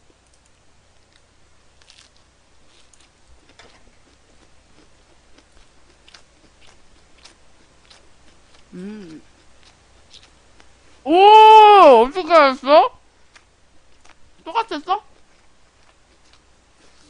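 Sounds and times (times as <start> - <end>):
close-miked chewing: 1.0 - 10.7, 13.2 - 17.0.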